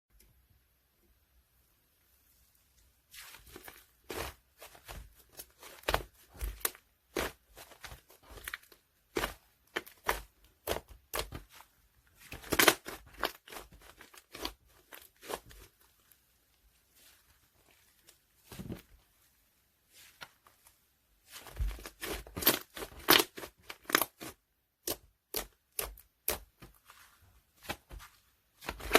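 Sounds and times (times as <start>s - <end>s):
slime crackling and popping: 12.2s - 15.7s.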